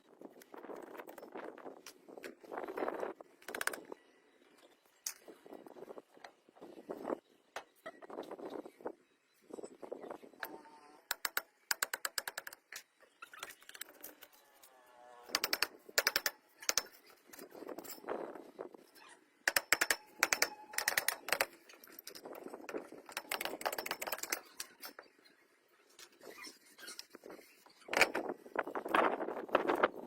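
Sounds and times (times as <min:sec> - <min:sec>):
rapid metallic clicking: 0:19.5 - 0:24.4.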